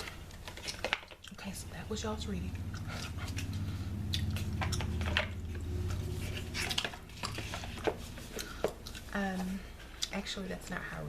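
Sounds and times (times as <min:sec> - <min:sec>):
steady low hum: 0:01.2 - 0:11.0
gum chewing smacks: 0:02.6 - 0:05.0.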